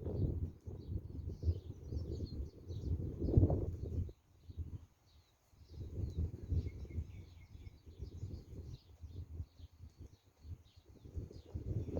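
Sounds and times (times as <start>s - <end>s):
wind buffeting microphone: 0.0s - 4.9s, 5.6s - 11.9s
small birds chirping: 0.0s - 11.9s.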